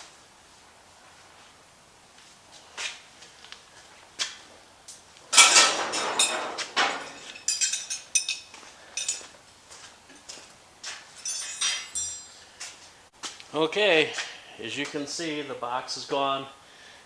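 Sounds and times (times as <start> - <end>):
scraping metal rattle: 5.3 - 9.2, 11.2 - 12.4
metal clinks and knocks: 5.3 - 9.3, 11.1 - 12.5
ringing metallic clinks: 5.4 - 9.3, 11.2 - 12.4.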